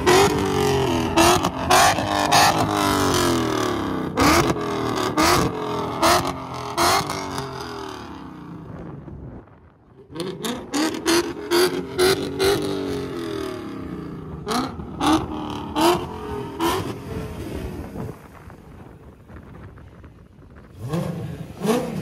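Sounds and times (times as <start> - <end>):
car engine revving hard: 0.0 - 8.6, 10.1 - 17.8, 20.8 - 22.0.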